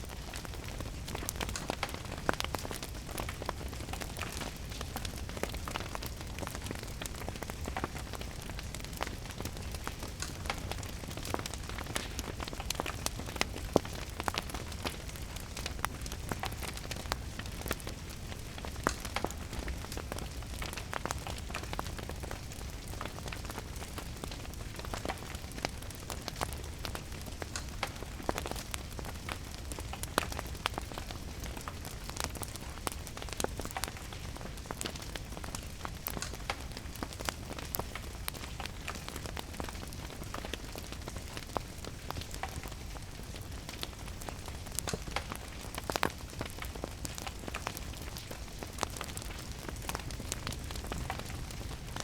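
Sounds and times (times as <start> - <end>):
steady falling rain: 0.0 - 52.0
wood fire crackling and popping: 0.0 - 52.0.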